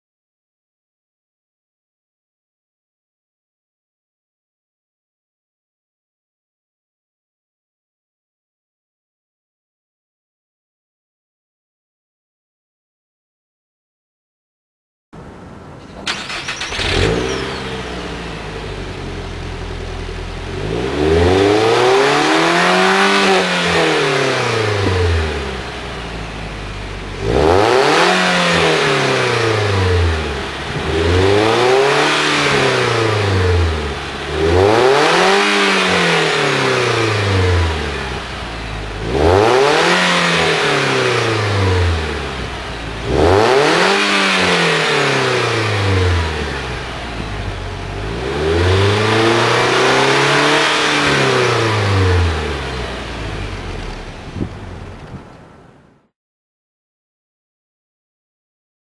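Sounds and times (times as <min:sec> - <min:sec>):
car engine idling: 0:15.6 - 0:21.4, 0:23.9 - 0:27.7, 0:28.7 - 0:35.0, 0:35.8 - 0:39.1, 0:41.2 - 0:43.1, 0:46.1 - 0:48.1, 0:50.8 - 0:55.7
car engine revving: 0:15.9 - 0:55.3.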